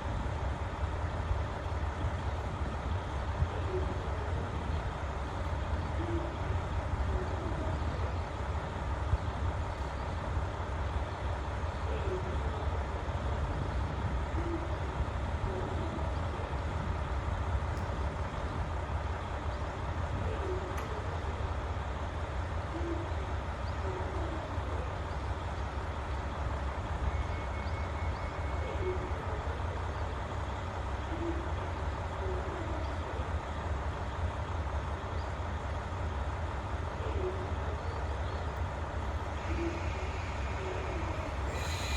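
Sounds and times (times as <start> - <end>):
diesel engines idling: 0.0 - 41.9
faint short hoots: 39.4 - 41.9.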